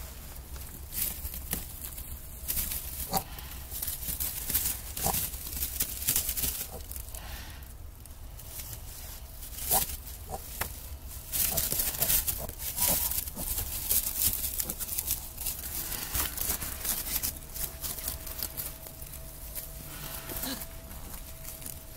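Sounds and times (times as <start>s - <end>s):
rustling in straw: 0.0s - 21.9s
piglets squeaking: 11.4s - 15.2s.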